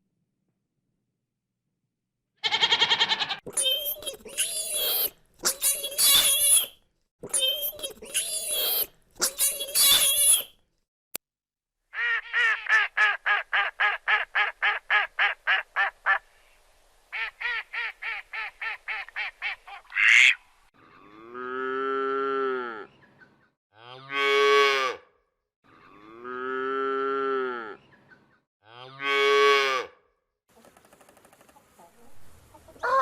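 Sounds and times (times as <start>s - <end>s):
duck quacking: 17.2s - 20.4s
cow mooing: 20.8s - 22.9s, 25.7s - 27.8s.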